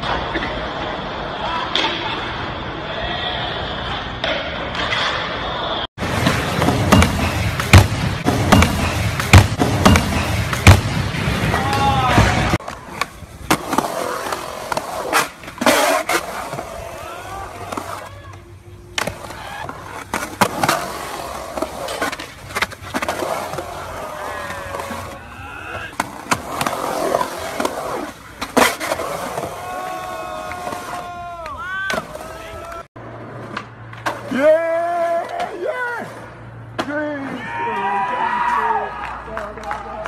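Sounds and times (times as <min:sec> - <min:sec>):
skateboards rolling on concrete: 0:00.0 - 0:40.0
skateboards clacking: 0:06.0 - 0:36.9
people's voices: 0:15.6 - 0:21.4.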